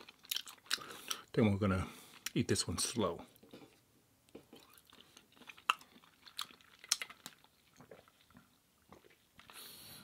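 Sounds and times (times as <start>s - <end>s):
chewing with mouth clicks: 0.0s - 1.3s, 3.3s - 9.6s
crunchy bites of food: 4.3s - 8.2s.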